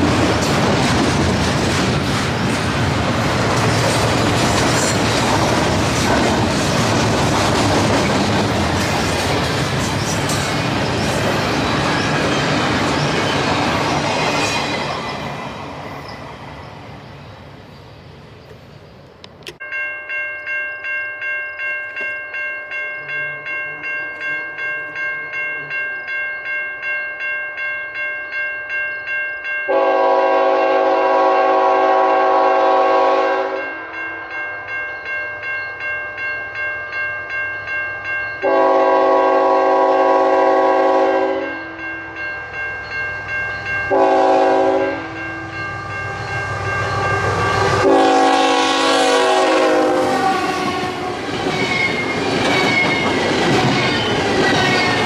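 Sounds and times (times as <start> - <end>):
crossing bell ringing: 0.0 - 17.8, 19.5 - 55.0
passing train noise: 0.0 - 55.0
locomotive air horn blasts: 29.7 - 33.8, 38.4 - 41.8, 43.9 - 45.8, 47.0 - 51.3.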